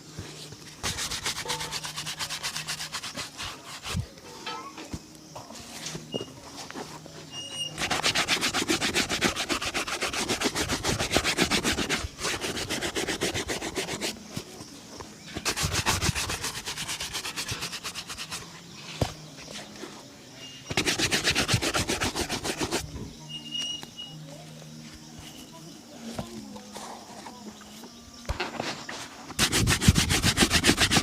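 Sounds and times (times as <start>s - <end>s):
shoe being buffed: 0.2s - 4.2s, 7.3s - 14.4s, 15.4s - 19.2s, 20.7s - 22.9s, 29.4s - 31.0s.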